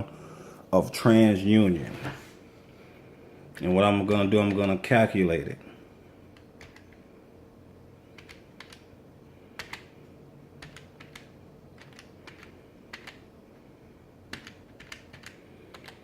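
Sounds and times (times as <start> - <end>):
faint steady hum: 0.0 - 16.0
calculator keys clicking: 6.4 - 7.0, 8.1 - 8.8, 9.6 - 9.9, 10.6 - 13.2, 14.3 - 16.0.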